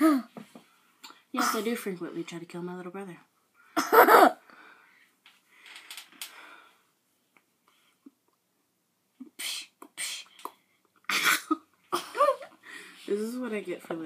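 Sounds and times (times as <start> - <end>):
person huffing breaths: 12.2 - 13.1.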